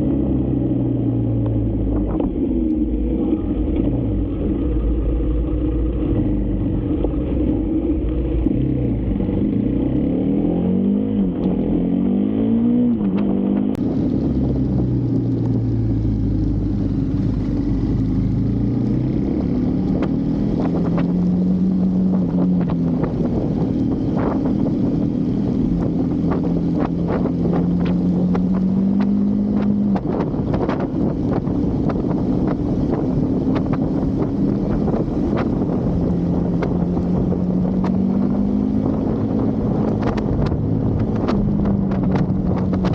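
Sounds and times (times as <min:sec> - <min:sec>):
motorcycle engine revving: 0:00.0 - 0:42.9
wind noise on microphone: 0:00.0 - 0:42.9.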